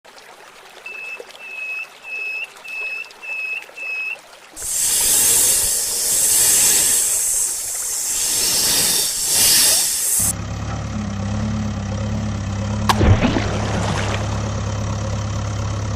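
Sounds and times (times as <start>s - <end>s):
loud hissing rush: 4.6s - 10.3s
engine idling: 4.6s - 15.9s.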